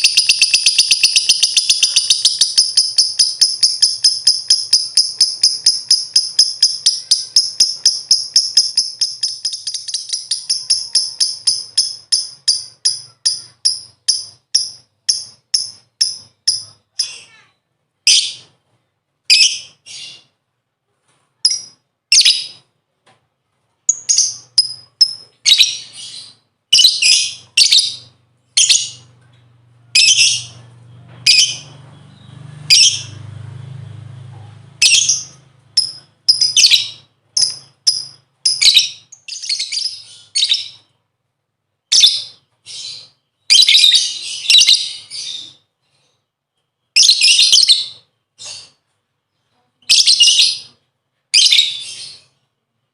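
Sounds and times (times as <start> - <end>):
bird shrill chirps: 0.0 - 17.4
faint low hum: 0.0 - 43.4.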